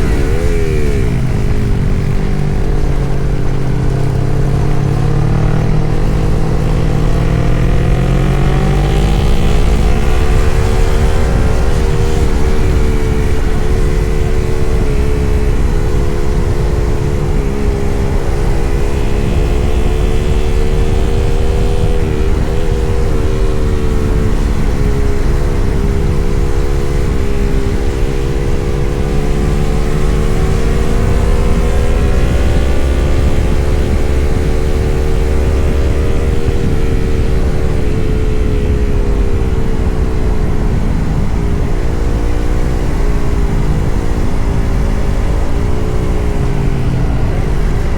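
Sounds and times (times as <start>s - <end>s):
motorcycle engine cruising: 0.0s - 47.9s.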